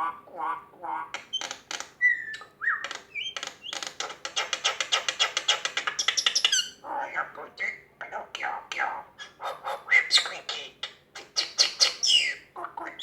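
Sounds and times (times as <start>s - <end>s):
mynah bird whistling and clicking: 1.2s - 6.6s.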